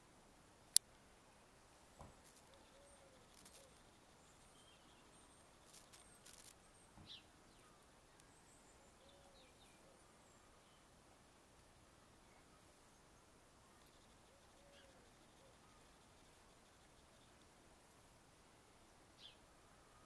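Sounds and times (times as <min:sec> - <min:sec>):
distant bird chirps: 0:02.0 - 0:11.0, 0:12.2 - 0:17.6
soft ticks: 0:02.2 - 0:04.4, 0:13.8 - 0:17.6.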